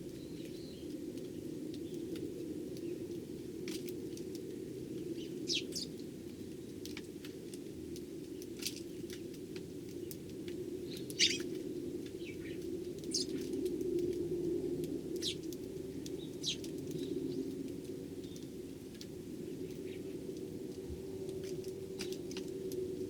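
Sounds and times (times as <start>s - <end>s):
sparrows chirping: 5.1s - 6.0s, 10.9s - 11.5s, 12.1s - 13.4s, 15.2s - 17.4s.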